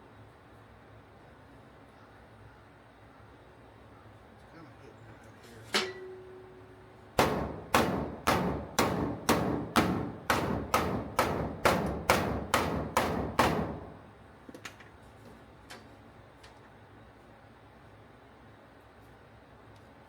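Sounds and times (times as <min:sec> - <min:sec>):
hammer blows ringing: 0:07.2 - 0:14.0.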